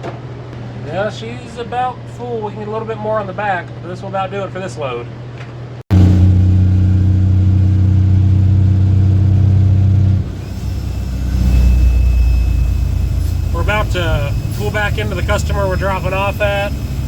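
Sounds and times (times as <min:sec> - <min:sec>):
diesel truck engine under load: 0:05.9 - 0:17.0.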